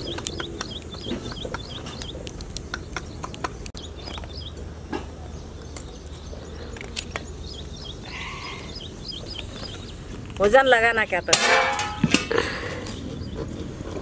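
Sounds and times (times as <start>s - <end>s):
sharp clicks and crackles: 0.0s - 4.4s
bird chirping: 0.0s - 11.4s, 12.0s - 14.0s
low outdoor rumble: 0.0s - 14.0s.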